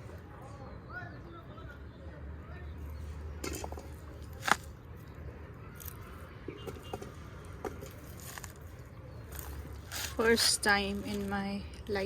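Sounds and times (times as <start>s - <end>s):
hands rustling in soil: 7.8s - 12.0s.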